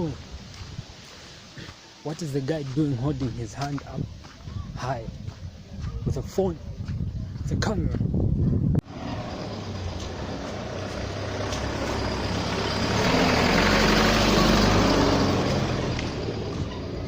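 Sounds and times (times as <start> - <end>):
heavy vehicle driving past: 8.8 - 17.0.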